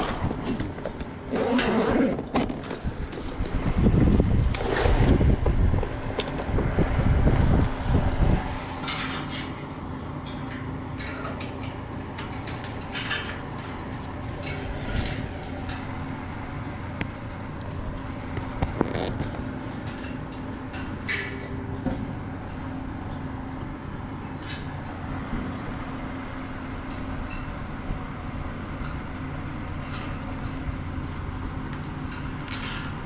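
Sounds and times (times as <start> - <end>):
steady low hum: 0.0 - 33.0
small clicks and scrapes: 17.0 - 20.9.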